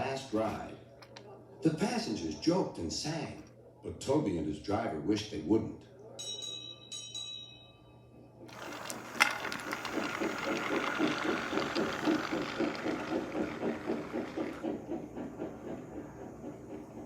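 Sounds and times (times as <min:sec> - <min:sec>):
toy train clattering on track: 0:00.4 - 0:01.3, 0:08.5 - 0:17.0
toy train motor whirring: 0:08.5 - 0:16.9.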